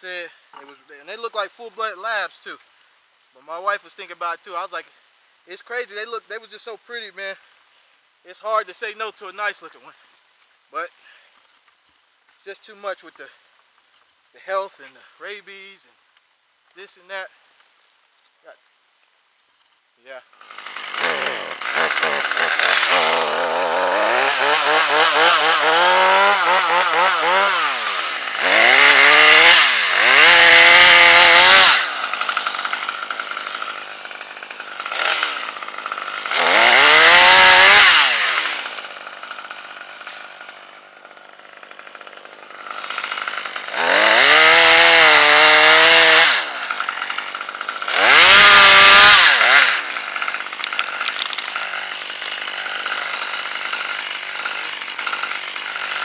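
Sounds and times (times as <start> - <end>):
chainsaw revving: 20.3 - 56.0.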